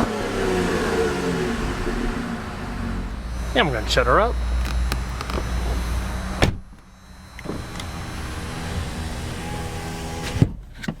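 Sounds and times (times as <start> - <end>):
car engine idling: 0.0 - 10.2
small electric motor humming: 1.7 - 10.4.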